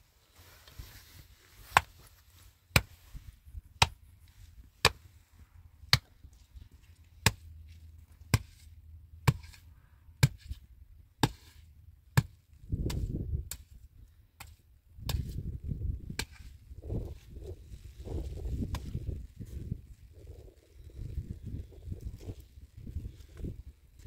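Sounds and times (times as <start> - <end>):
spade chopping hard earth: 2.7 - 3.0, 3.8 - 4.0, 4.8 - 5.1, 5.8 - 6.2, 7.2 - 7.5, 8.2 - 17.2, 18.6 - 19.1.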